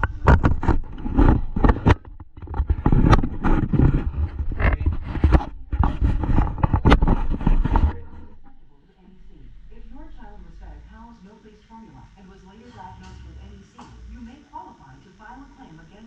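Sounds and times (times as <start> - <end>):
loud knocks and scrapes: 0.0 - 8.6
dull low thumps: 0.0 - 11.2.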